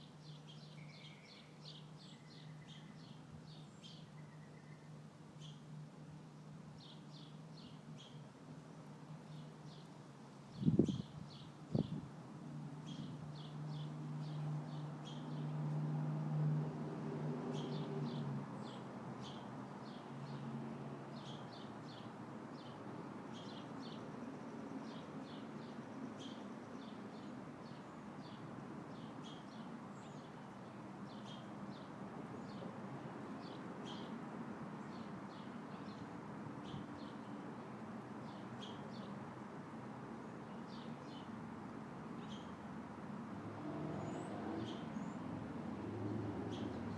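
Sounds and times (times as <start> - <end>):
small birds chirping: 0.0 - 5.7, 6.3 - 12.0, 12.8 - 15.6, 17.5 - 20.4, 21.2 - 32.8, 33.4 - 41.4, 42.1 - 42.6, 43.9 - 45.3, 46.0 - 46.9
wind noise: 10.6 - 12.1.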